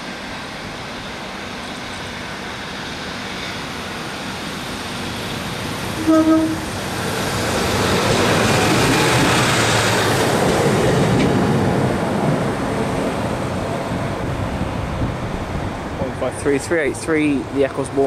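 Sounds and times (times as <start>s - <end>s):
train engine and wheel noise: 0.0s - 18.0s
train horn blast: 6.0s - 6.7s.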